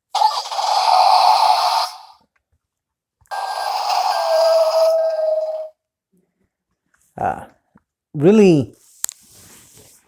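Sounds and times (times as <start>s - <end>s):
toy electronic sound effects: 0.1s - 2.2s, 3.3s - 5.6s.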